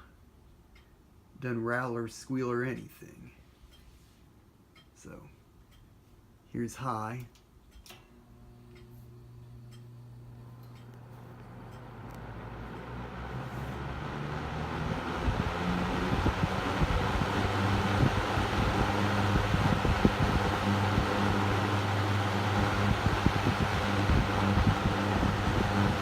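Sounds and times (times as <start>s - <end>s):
box fan running: 7.8s - 26.0s.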